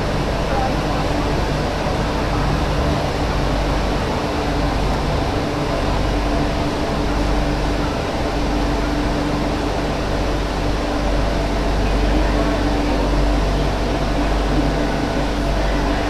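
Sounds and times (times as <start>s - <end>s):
train carriage rumble and hiss: 0.0s - 16.0s.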